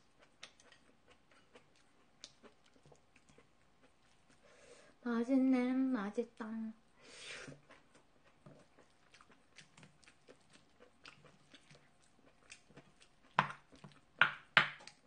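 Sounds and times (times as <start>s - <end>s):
chewing with mouth clicks: 0.0s - 4.5s, 7.5s - 14.2s.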